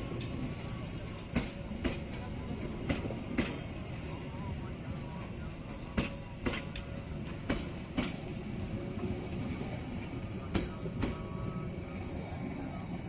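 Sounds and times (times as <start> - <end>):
wheels clicking over rail joints: 0.0 - 3.8, 4.9 - 11.3
train rumbling: 0.0 - 13.0.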